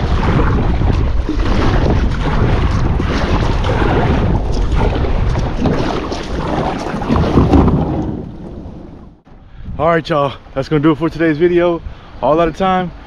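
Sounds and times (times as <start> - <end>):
water rushing and splashing: 0.0 - 9.2
wind buffeting microphone: 0.0 - 13.0.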